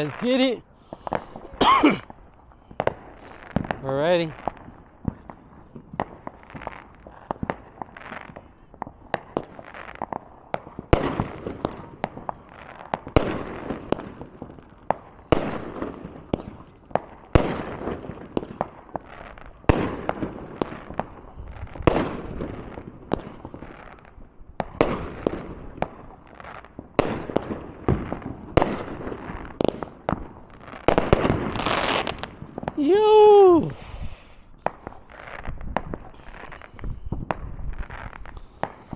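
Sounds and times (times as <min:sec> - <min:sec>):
fireworks bangs and pops: 0:00.0 - 0:38.9
fireworks crackling: 0:00.0 - 0:38.9.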